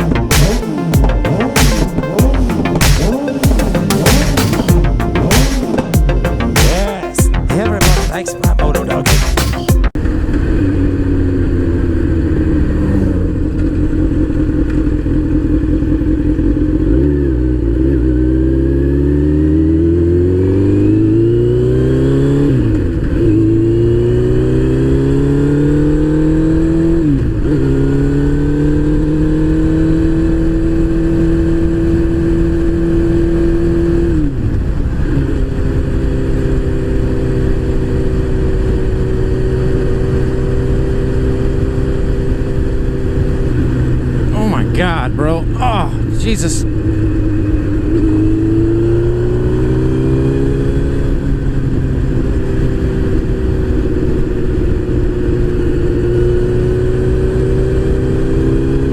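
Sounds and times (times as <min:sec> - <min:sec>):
motorcycle engine accelerating: 0:09.4 - 0:44.3, 0:46.7 - 0:58.9.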